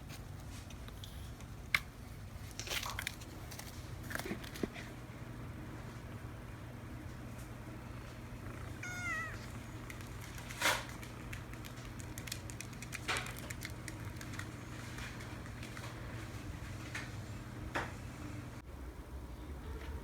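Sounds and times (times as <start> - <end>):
kitten mewing: 8.5 - 10.0.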